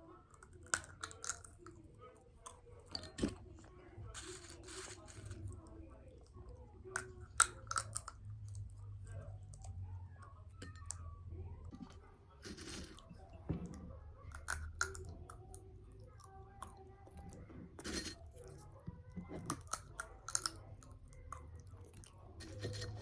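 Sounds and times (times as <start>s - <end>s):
small objects clicking and tapping: 0.3s - 1.8s, 6.9s - 8.7s, 10.5s - 11.0s, 11.7s - 23.0s
rustling of small objects: 4.1s - 5.6s, 11.7s - 13.2s.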